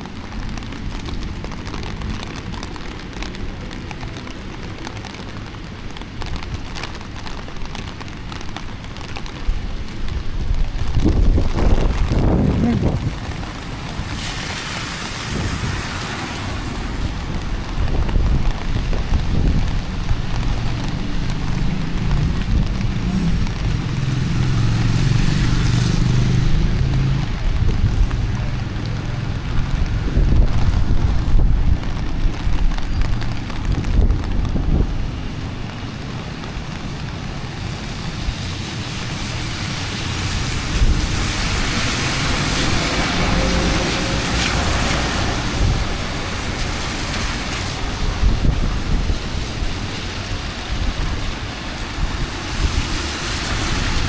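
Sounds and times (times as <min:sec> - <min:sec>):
raindrops ticking: 0:00.0 - 0:53.9
rain hiss: 0:00.0 - 0:54.0
traffic rumble: 0:00.0 - 0:54.0
wind on microphone: 0:09.0 - 0:35.7, 0:37.8 - 0:54.0.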